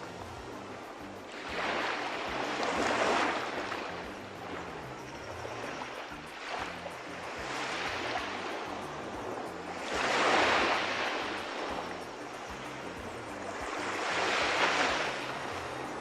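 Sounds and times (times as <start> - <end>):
sea waves washing onto shore: 0.0 - 16.0.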